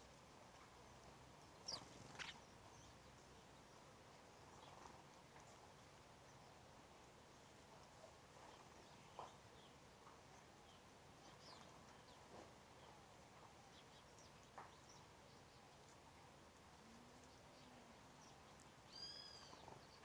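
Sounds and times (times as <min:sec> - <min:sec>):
background hiss: 0:00.0 - 0:20.0
faint bird chirps: 0:01.5 - 0:03.5, 0:16.9 - 0:20.0.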